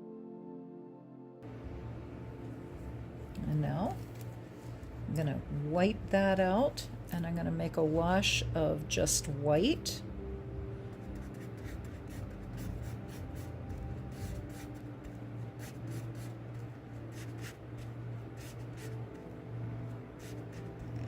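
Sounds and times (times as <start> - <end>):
soft background music: 0.0 - 21.0
paintbrush strokes on canvas: 11.0 - 21.0.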